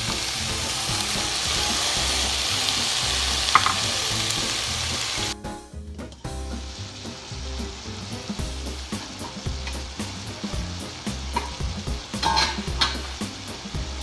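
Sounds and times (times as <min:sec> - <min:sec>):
food sizzling in a pot: 0:00.0 - 0:14.0.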